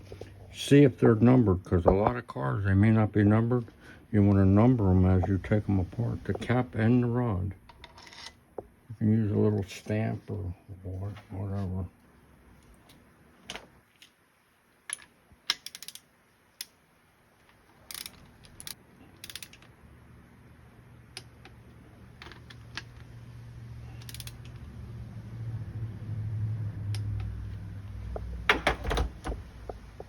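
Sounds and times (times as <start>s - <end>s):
metallic clicks of hand tools: 14.9s - 16.8s, 17.9s - 19.7s, 24.0s - 24.6s.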